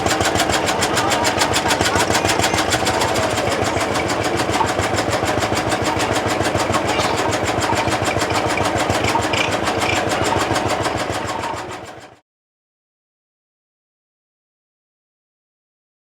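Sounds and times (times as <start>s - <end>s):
single-cylinder engine running: 0.0s - 12.2s.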